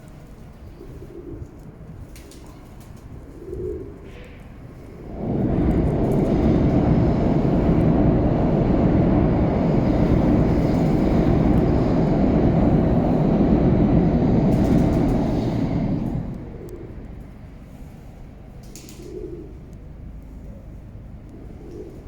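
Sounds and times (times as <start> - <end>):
loud low rumble: 5.0 - 17.4.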